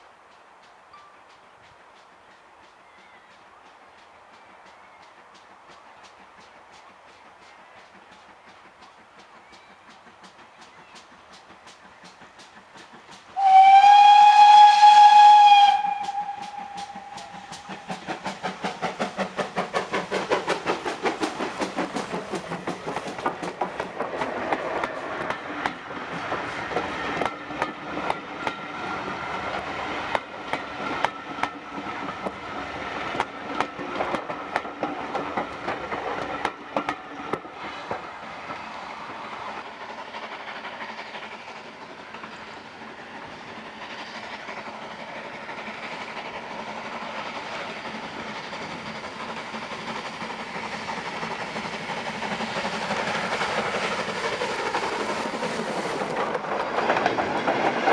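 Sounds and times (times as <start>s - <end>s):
steam locomotive exhaust beats: 0.0s - 57.9s
train rolling rumble: 0.0s - 57.9s
wheels clicking over rail joints: 0.0s - 57.9s.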